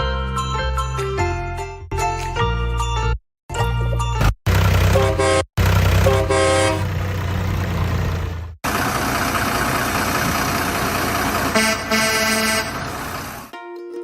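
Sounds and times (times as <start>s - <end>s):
low engine rumble: 4.5s - 13.5s
vehicle horn tooting: 4.9s - 5.4s, 6.0s - 6.8s, 11.5s - 12.9s.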